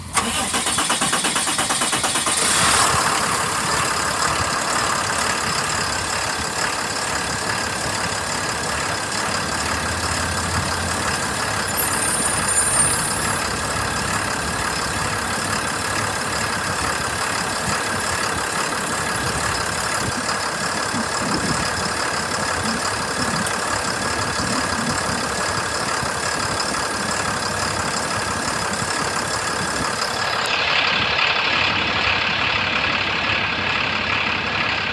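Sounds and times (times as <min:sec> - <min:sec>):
diesel engine idling: 0:03.4 - 0:12.3, 0:13.6 - 0:34.9
thin steady whine: 0:11.7 - 0:13.5.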